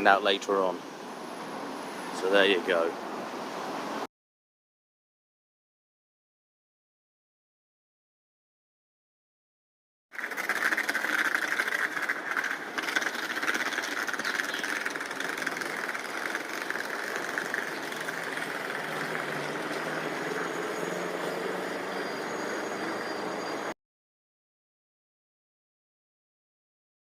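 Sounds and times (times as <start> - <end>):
engine running steadily: 10.2 - 23.7.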